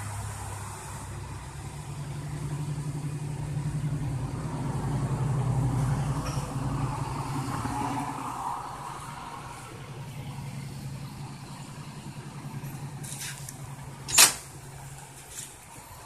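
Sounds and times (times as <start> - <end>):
car engine running: 9.6 - 16.0.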